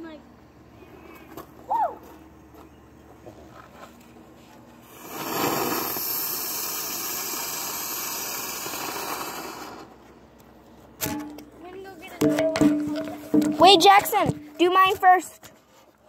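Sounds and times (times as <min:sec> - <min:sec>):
ground firework hissing: 0:04.8 - 0:10.0.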